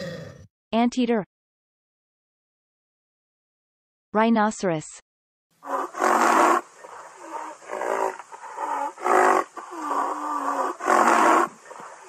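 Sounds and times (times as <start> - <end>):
rhinoceros grunting: 5.6 - 12.0.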